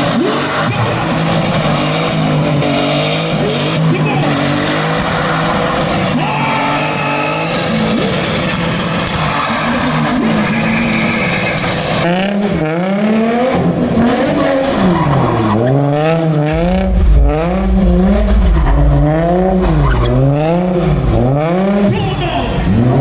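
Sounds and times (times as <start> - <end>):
car engine revving hard: 0.0 - 21.9, 22.5 - 23.0
tyre squeal: 9.2 - 12.0
deep rumble: 16.5 - 21.9.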